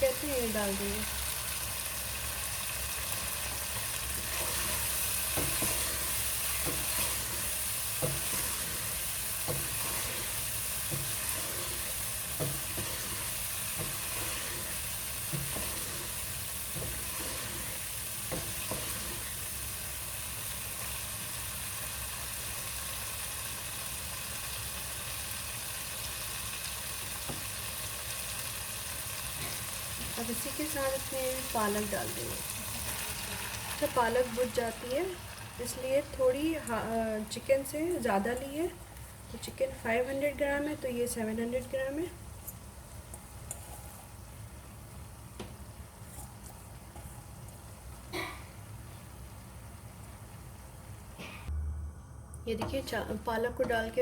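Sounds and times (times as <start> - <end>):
food sizzling in a pan: 0.0 - 38.6.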